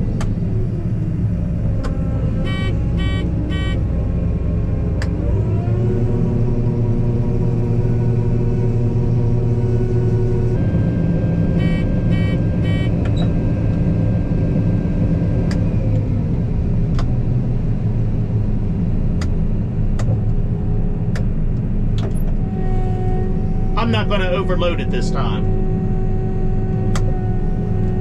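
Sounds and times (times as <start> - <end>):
short electronic beeps: 2.5 - 3.8, 11.6 - 13.0.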